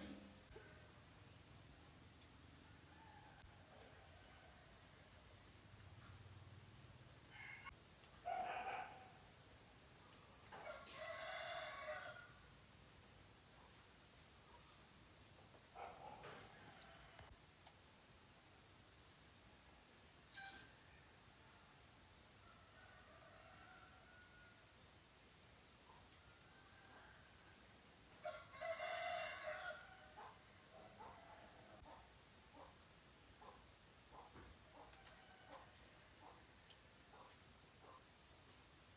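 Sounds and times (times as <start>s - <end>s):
crickets chirping: 0.0s - 38.9s
rooster crowing: 7.3s - 9.0s, 10.5s - 12.4s, 16.2s - 17.3s, 22.6s - 24.6s, 28.2s - 30.4s, 34.8s - 36.3s.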